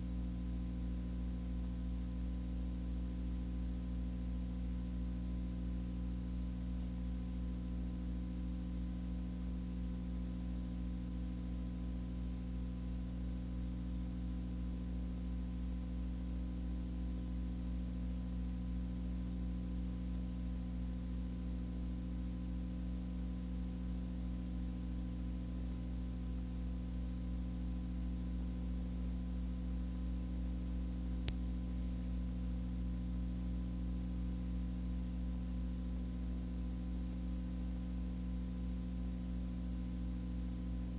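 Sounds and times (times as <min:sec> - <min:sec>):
steady low hum: 0:00.0 - 0:40.9
light hiss: 0:30.4 - 0:32.3.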